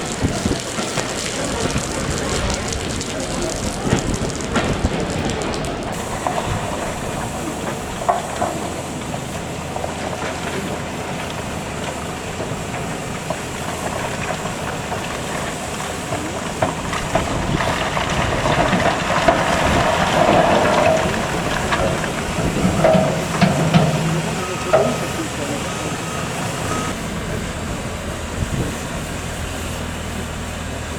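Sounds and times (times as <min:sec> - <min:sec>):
hissing noise: 0:00.0 - 0:16.7
train wheels clicking over joints: 0:00.0 - 0:30.8.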